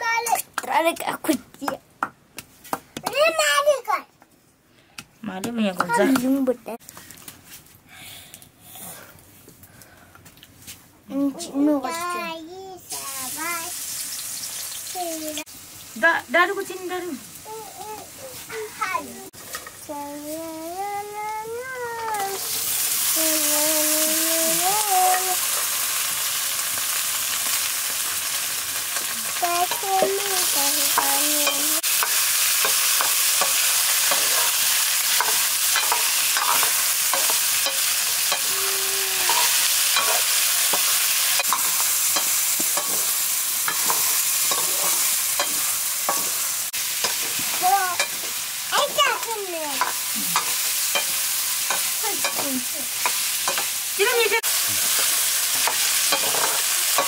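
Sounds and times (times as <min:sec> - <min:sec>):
food sizzling in hot oil: 0:12.8 - 0:57.0.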